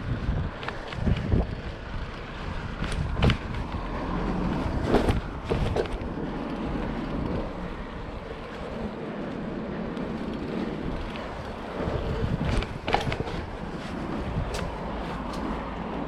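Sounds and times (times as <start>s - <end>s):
bike tyres rolling: 0.0s - 16.0s
wind buffeting camera: 0.0s - 16.0s
bike knocks and clatters: 0.2s - 6.2s, 10.1s - 15.5s.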